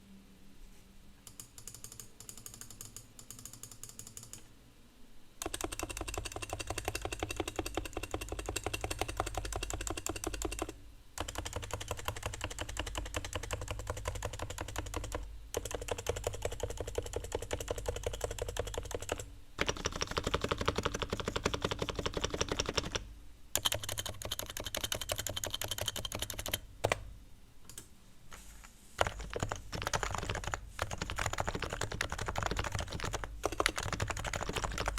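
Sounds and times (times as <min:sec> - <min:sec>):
keyboard typing: 0:01.2 - 0:04.5, 0:05.4 - 0:34.9.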